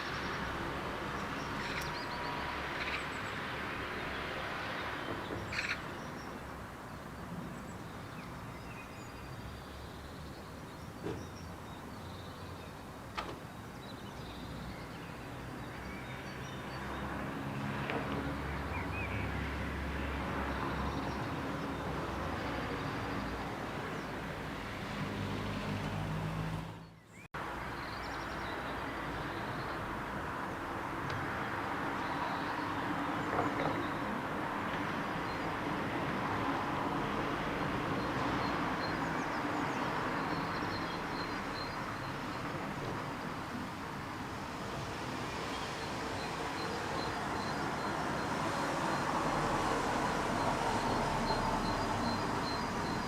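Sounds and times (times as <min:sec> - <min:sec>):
bird chirps: 0:05.2 - 0:06.4.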